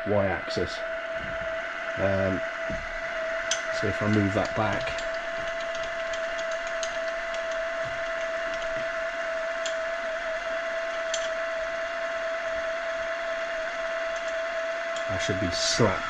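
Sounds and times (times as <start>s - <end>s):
milling machine spindle whine: 0.0s - 16.0s
faint ticks: 2.8s - 15.4s.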